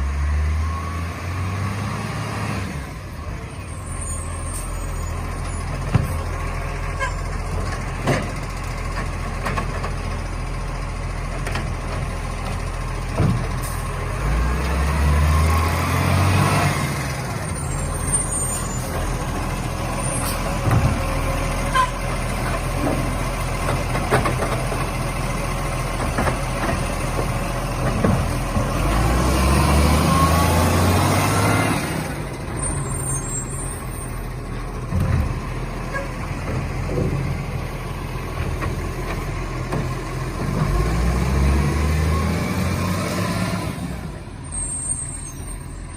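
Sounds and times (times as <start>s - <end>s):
knocks and clunks: 7.4s - 10.1s, 11.3s - 13.8s, 20.5s - 25.0s, 25.9s - 28.9s, 34.6s - 37.7s, 38.3s - 40.8s
garbage truck engine revving: 11.3s - 45.0s.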